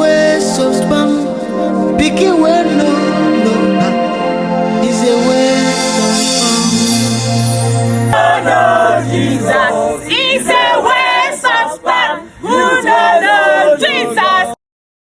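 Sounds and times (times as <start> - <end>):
voices singing gospel: 0.0 - 14.6
held keyboard chord: 2.5 - 10.8.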